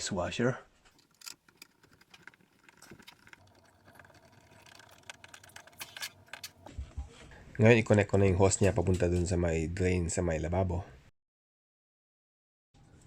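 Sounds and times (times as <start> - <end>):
screws and hand tool clicking: 0.9 - 6.7.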